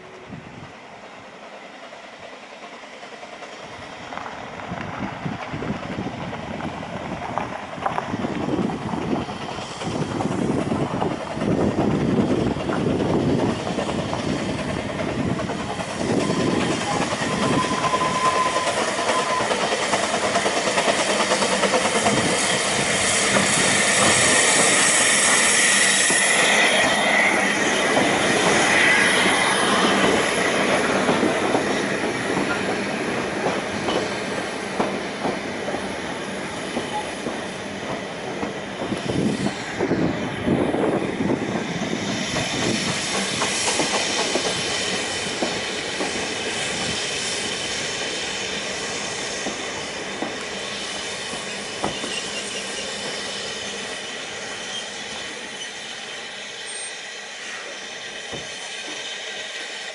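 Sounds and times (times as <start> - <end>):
carriages clicking over rail joints: 2.7 - 40.0, 41.5 - 47.3, 51.2 - 54.0
train wheels squealing: 8.1 - 59.9.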